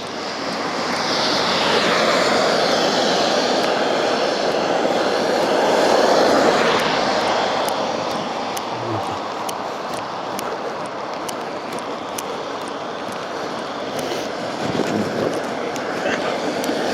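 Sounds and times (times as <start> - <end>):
engine passing by: 0.0 - 10.3.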